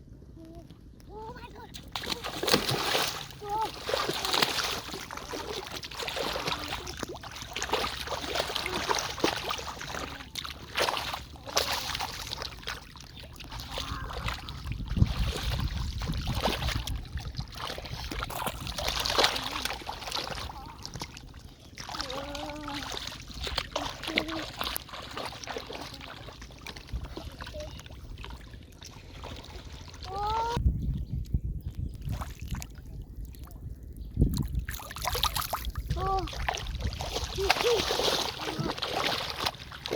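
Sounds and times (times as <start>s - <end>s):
water splashing and sloshing: 0.3s - 39.9s.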